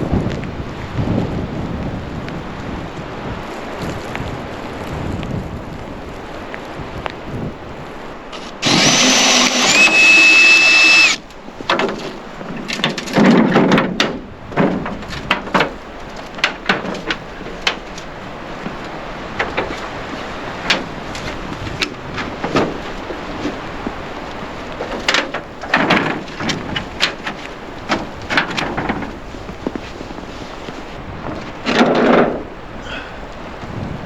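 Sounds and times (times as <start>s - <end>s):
wind noise: 0.0s - 34.0s
power tool motor whining: 8.4s - 11.2s.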